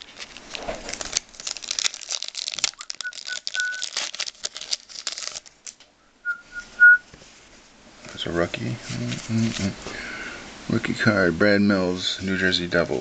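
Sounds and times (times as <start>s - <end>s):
high whistled notes: 2.8s - 3.9s, 6.2s - 7.1s.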